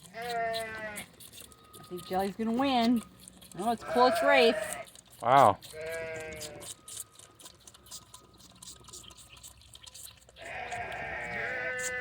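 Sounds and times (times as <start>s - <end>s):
lamb bleating: 0.0s - 1.9s, 3.5s - 7.2s, 10.4s - 12.0s
lambs sucking bottle nipples: 0.0s - 12.0s.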